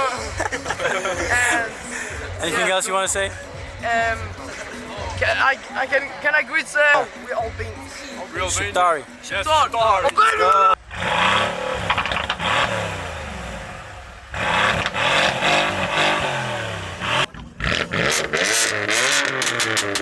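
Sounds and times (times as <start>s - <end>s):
car engine revving: 10.8s - 20.0s.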